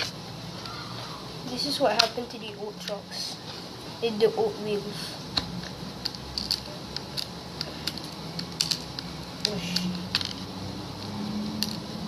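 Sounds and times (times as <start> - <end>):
skateboard parts clicking: 2.0 - 2.2, 6.0 - 10.4, 11.6 - 11.9.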